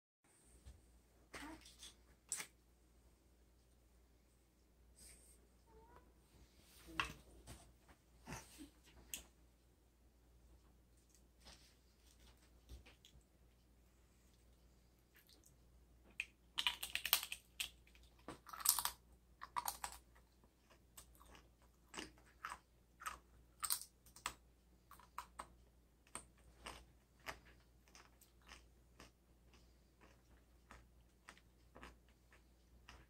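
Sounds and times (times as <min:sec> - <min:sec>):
chewing crunches: 0:16.2 - 0:33.0
tortilla chip crunching: 0:16.6 - 0:24.4.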